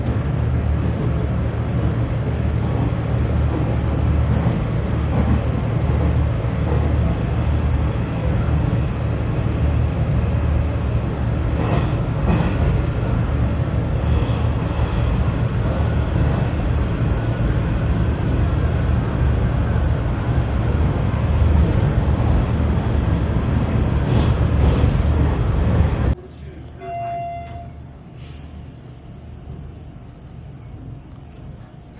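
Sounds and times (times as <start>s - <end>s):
electric train rumble on board: 0.0s - 31.9s.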